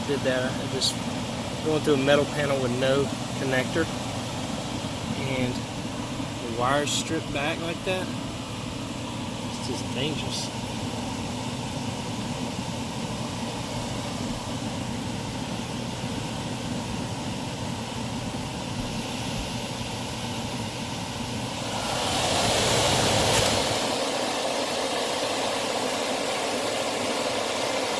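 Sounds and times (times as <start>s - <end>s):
air conditioner humming: 0.0s - 27.9s.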